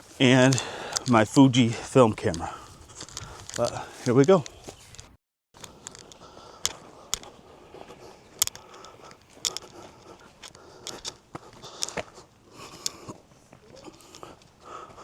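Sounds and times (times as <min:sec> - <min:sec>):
footsteps crunching on trail: 0:00.0 - 0:15.0
sharp clicks and crackles: 0:02.2 - 0:07.4, 0:08.3 - 0:12.1.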